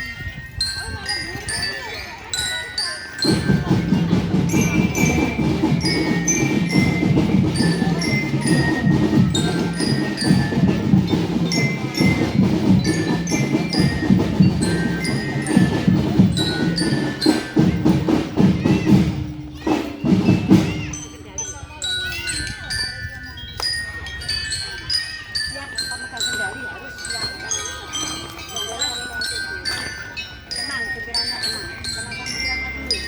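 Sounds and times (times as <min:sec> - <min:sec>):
marching bells melody: 0:00.0 - 0:33.0
marching drums beating: 0:03.2 - 0:21.2.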